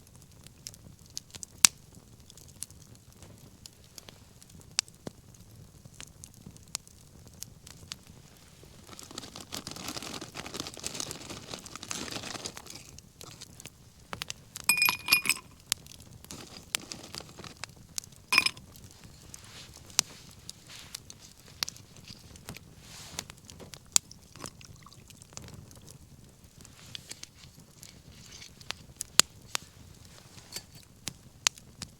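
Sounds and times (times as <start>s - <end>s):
wood bonfire crackling: 0.0s - 14.8s, 15.4s - 31.9s
utensil clinking: 14.7s - 15.6s, 16.3s - 17.6s, 18.4s - 18.6s.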